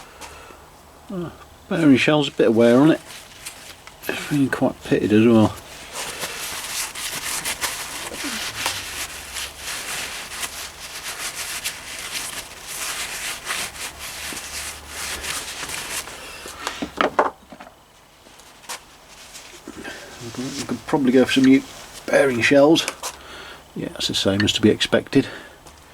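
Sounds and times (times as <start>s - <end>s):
hands scraping metal engine parts: 2.6s - 17.0s.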